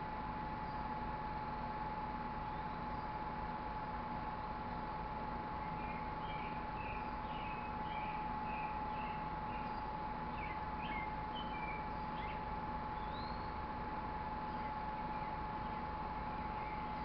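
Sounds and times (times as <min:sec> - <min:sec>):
faint steady hum: 0:00.0 - 0:17.0
songbirds chirping: 0:04.2 - 0:17.0.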